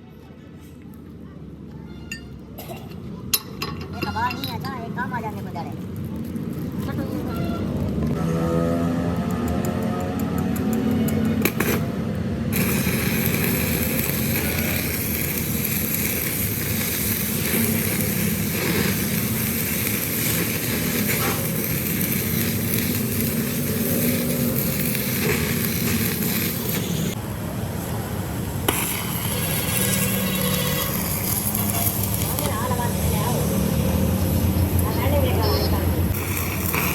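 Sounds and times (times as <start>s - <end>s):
workshop machinery hum: 8.0s - 36.9s
broad hiss: 12.5s - 27.2s, 36.1s - 36.9s.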